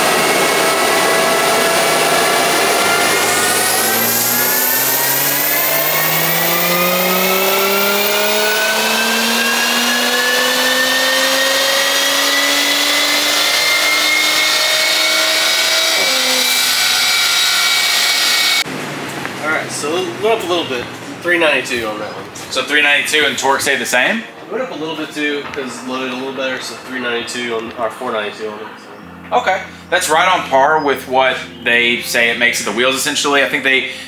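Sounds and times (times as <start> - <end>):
car engine revving at full throttle: 0.0 - 19.7.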